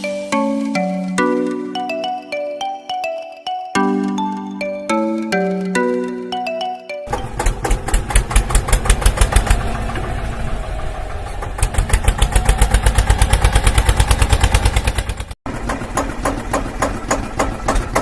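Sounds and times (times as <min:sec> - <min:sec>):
tractor engine chugging: 0:07.1 - 0:18.0.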